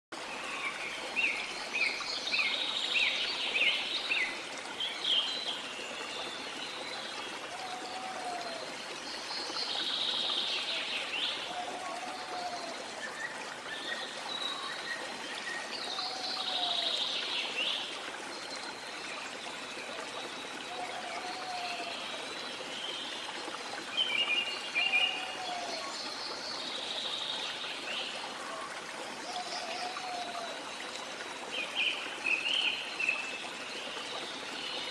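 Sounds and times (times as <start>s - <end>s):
waterfall rushing water: 0.2s - 34.9s.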